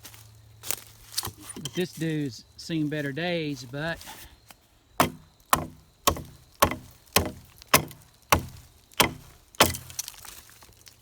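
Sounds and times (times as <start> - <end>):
axe chopping wood: 1.1 - 1.7, 5.0 - 10.3.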